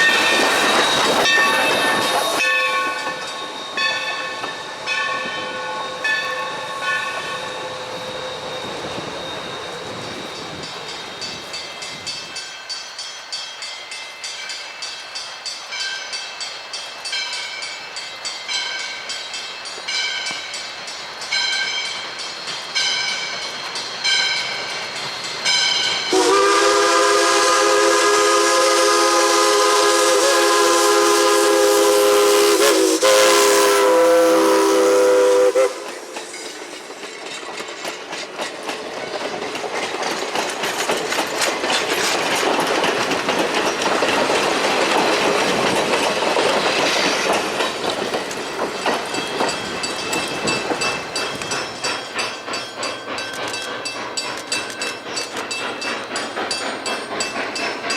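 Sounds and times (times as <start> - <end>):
steam locomotive whistle: 0.0 - 11.4, 26.0 - 36.6
train running by on rails: 0.0 - 57.9.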